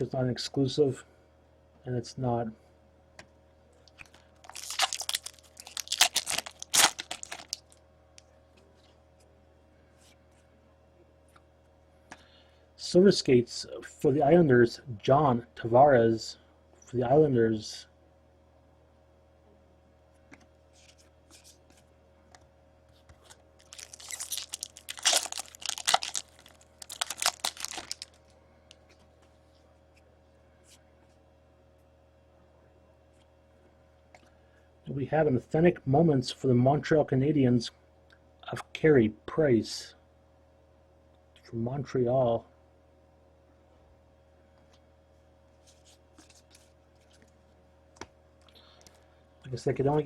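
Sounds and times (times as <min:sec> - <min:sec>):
cards and packaging crinkling: 0:03.9 - 0:07.8, 0:23.1 - 0:29.0
wrapper crumpled and torn: 0:03.9 - 0:07.8, 0:23.2 - 0:28.3.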